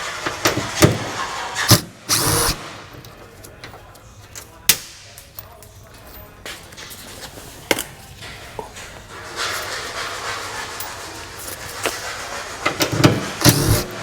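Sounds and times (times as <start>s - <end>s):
power tool burst: 1.5s - 2.8s, 13.0s - 14.0s.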